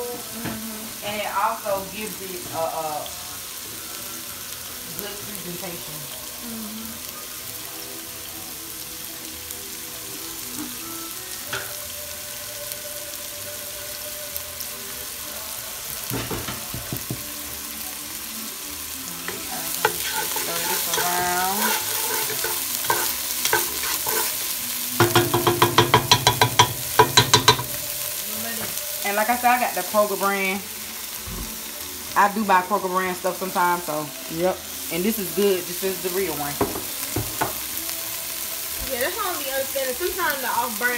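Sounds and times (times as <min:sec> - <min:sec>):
vegetables sizzling in oil: 0:00.0 - 0:40.9
wooden spoon scraping a pan: 0:19.3 - 0:24.6.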